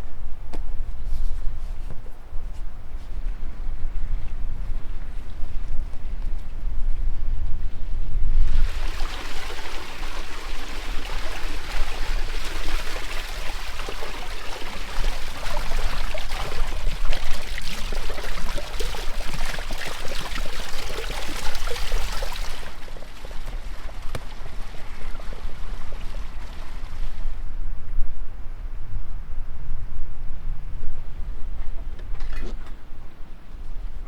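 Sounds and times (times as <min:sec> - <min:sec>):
water pouring and splashing: 0:08.4 - 0:27.4.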